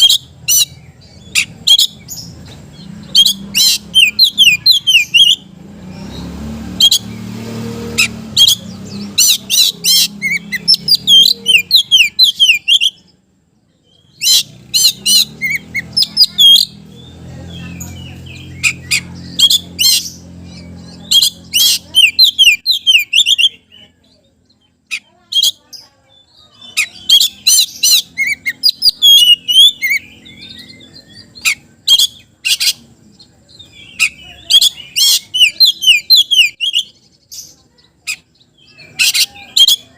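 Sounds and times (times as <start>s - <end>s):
songbird chirping and whistling: 0.0s - 39.9s.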